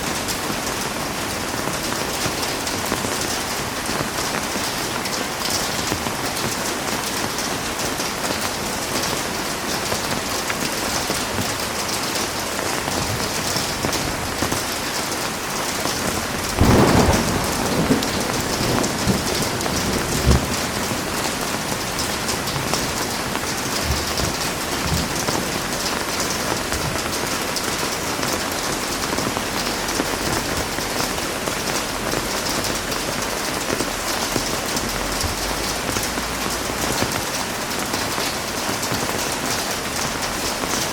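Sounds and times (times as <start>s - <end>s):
heavy rain: 0.0s - 40.9s
thunder: 16.2s - 25.5s.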